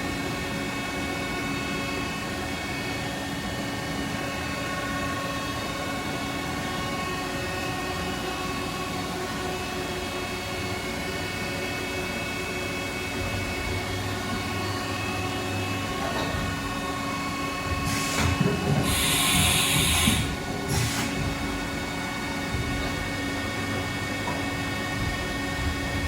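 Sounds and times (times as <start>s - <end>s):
milling machine whine: 0.0s - 26.0s
air hissing: 17.8s - 21.2s.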